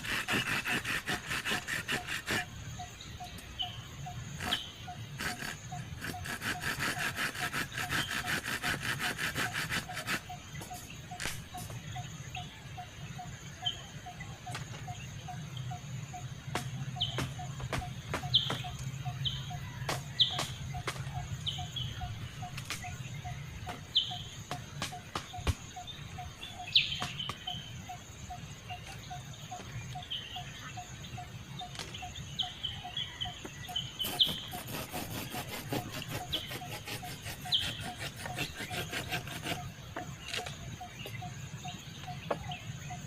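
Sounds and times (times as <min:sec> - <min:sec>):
fast rasping ticking: 0:00.0 - 0:02.5, 0:05.2 - 0:10.3, 0:34.0 - 0:39.7
birds chirping: 0:00.0 - 0:43.0.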